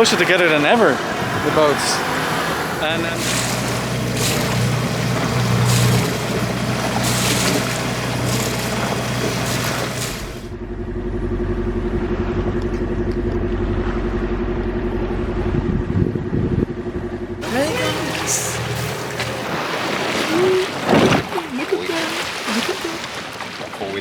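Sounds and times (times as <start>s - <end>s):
water rushing past hull: 0.0s - 10.6s, 17.4s - 24.0s
low motor hum: 0.0s - 21.6s
boat engine drone: 0.0s - 24.0s.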